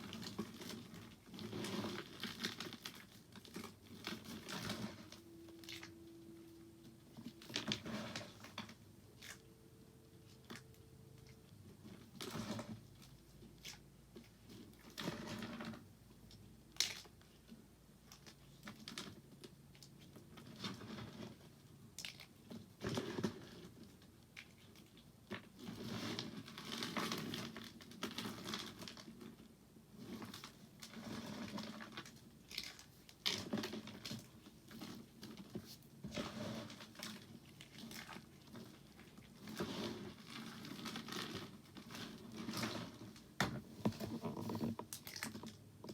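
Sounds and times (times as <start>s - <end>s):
soap crunching and crackling: 10.3s - 15.6s, 16.3s - 21.4s, 30.0s - 45.9s.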